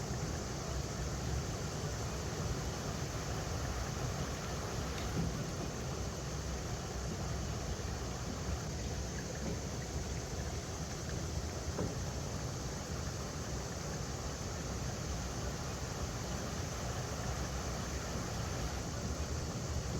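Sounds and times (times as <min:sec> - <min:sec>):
river water rushing over rocks: 0:00.1 - 0:08.8, 0:13.0 - 0:19.9.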